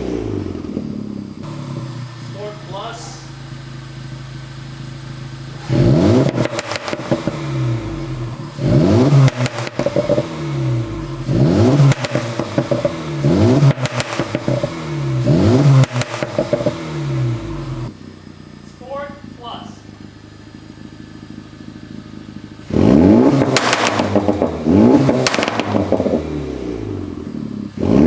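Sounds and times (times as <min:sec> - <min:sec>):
car engine idling and revving: 0:00.0 - 0:28.0
exhaust pops and crackles: 0:00.6 - 0:18.0, 0:22.1 - 0:26.3.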